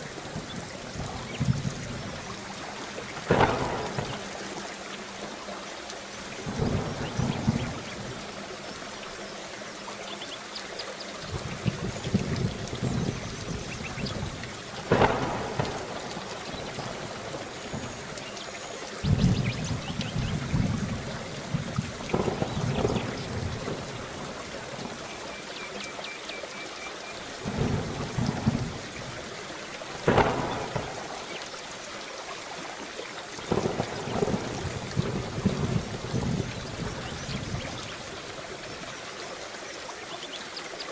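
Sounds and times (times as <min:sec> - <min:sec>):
sharp thunder cracks: 0:00.0 - 0:04.6, 0:06.4 - 0:08.2, 0:11.3 - 0:18.2, 0:19.0 - 0:25.0, 0:27.4 - 0:29.2, 0:29.9 - 0:31.4, 0:33.5 - 0:37.9
thunder rumbling: 0:00.0 - 0:05.2, 0:06.2 - 0:08.6, 0:11.3 - 0:18.3, 0:19.0 - 0:25.2, 0:27.4 - 0:31.6, 0:33.5 - 0:38.6
heavy rain: 0:00.0 - 0:40.9.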